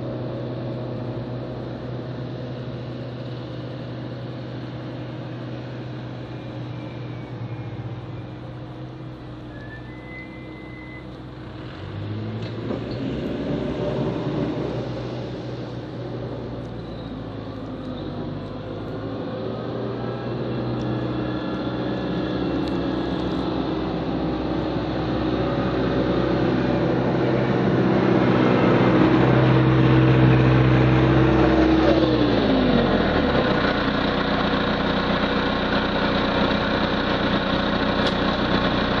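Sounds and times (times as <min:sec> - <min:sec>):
diesel engine under load: 0:00.0 - 0:39.0.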